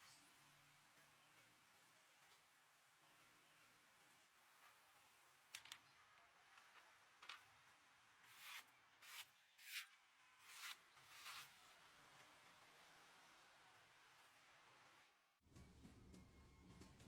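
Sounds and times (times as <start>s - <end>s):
faint scraping strokes: 8.3s - 12.2s.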